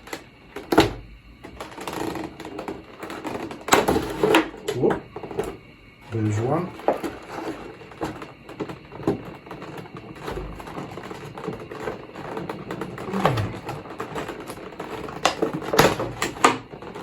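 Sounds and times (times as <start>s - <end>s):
packaging clicks and scrapes: 0.0s - 17.0s
short falling creak: 12.9s - 13.8s.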